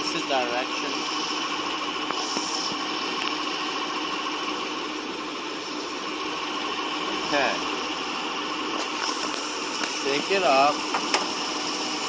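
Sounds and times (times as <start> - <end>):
car engine idling: 0.0 - 12.0
air conditioning running: 1.2 - 12.0.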